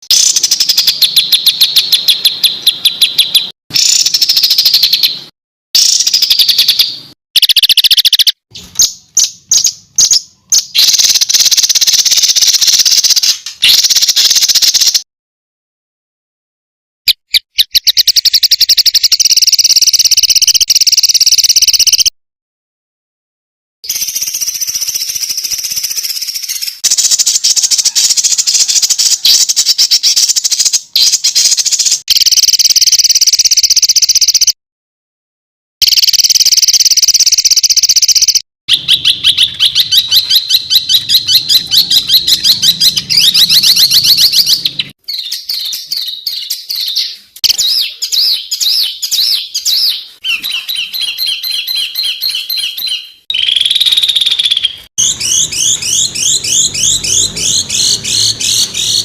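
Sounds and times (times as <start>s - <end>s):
songbird trilling: 0.1s - 5.2s, 5.8s - 15.0s, 17.1s - 22.1s, 23.9s - 32.1s, 35.9s - 59.0s.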